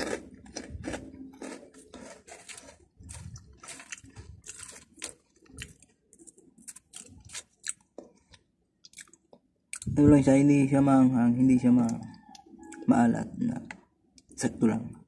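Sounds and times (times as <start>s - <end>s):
mouth chewing crunchy snack: 0.0s - 10.0s.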